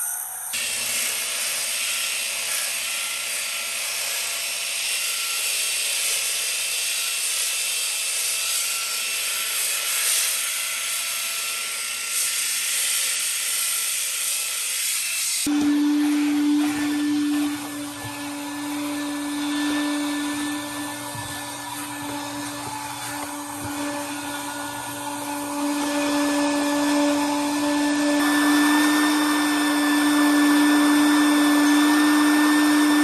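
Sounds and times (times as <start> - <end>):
electric power sander running: 14.8 - 33.0.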